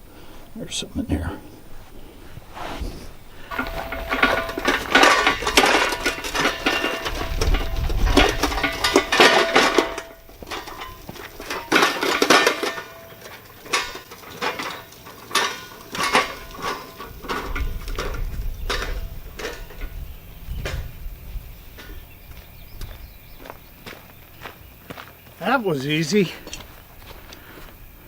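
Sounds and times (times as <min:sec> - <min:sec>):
metal parts clanking: 0:03.5 - 0:21.0.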